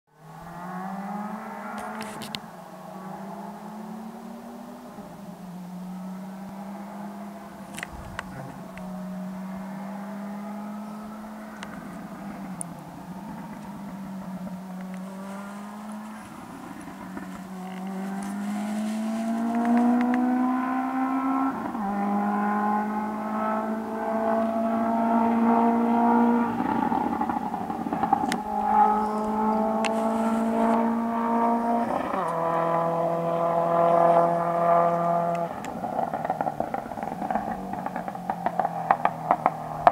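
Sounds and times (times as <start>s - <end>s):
distant car accelerating hard: 0.1s - 39.9s
exhaust pops and bangs: 35.5s - 39.9s.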